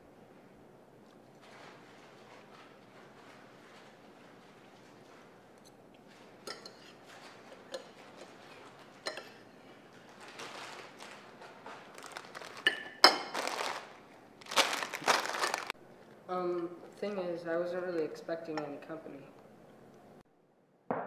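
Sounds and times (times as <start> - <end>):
dishes and cutlery clinking: 5.6 - 9.5.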